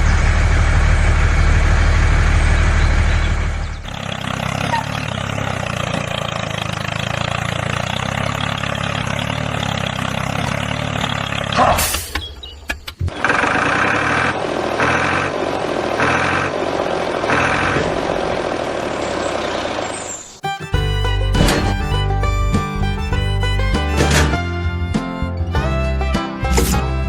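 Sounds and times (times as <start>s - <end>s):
engine-like low drone: 0.0s - 27.0s.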